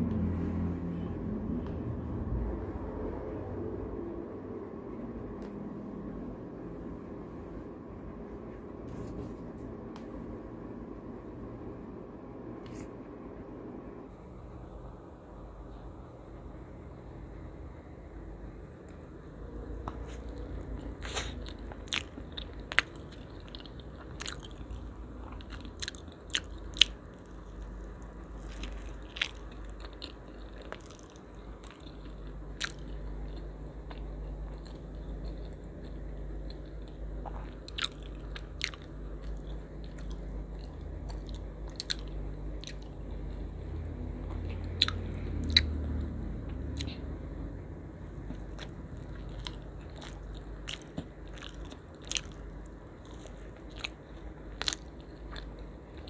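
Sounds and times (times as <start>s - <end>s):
low steady hum: 0.0s - 56.0s
person biting and chewing: 19.8s - 43.0s, 44.4s - 46.1s, 48.2s - 56.0s.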